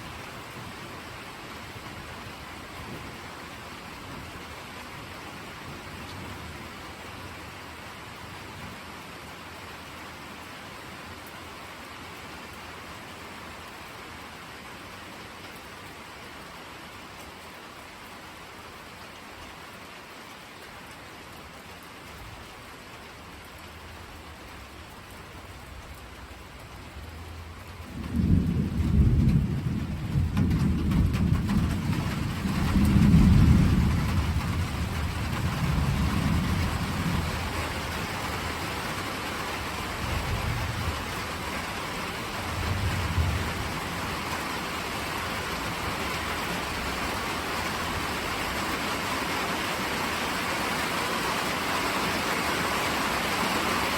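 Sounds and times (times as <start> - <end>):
steady rain falling: 0.0 - 53.9
thunder rumbling: 25.4 - 38.8, 39.7 - 44.4.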